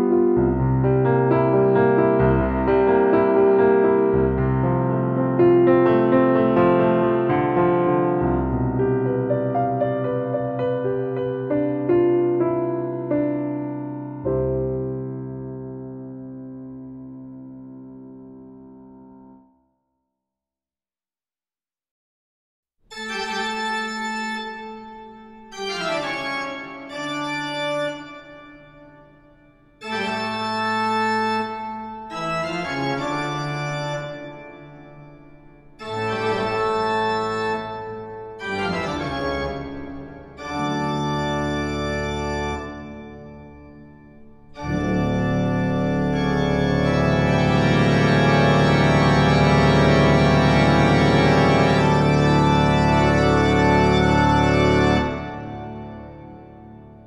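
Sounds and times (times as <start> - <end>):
organ chords: 22.9 - 57.0.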